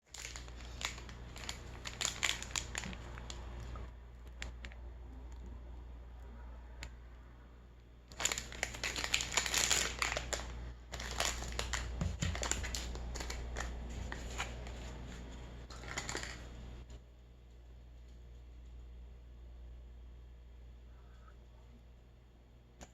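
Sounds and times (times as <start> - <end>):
food wrapper crinkling: 0.0 - 4.8, 8.1 - 14.9, 15.6 - 16.6.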